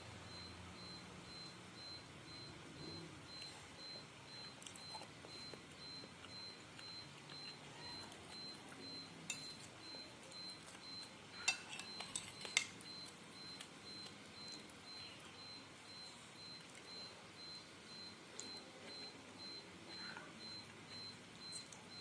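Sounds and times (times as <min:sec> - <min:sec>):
cutlery clinking against bowl: 0:09.3 - 0:09.7, 0:11.4 - 0:12.8.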